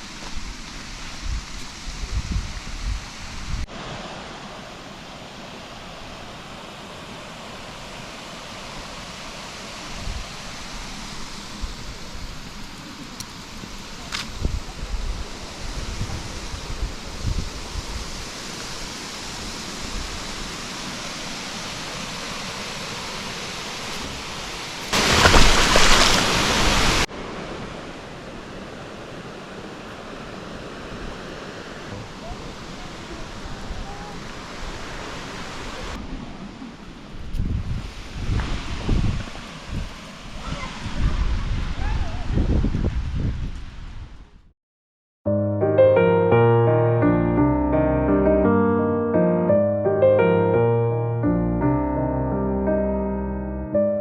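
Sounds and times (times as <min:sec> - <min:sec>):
steady rushing hiss: 0:00.0 - 0:40.8.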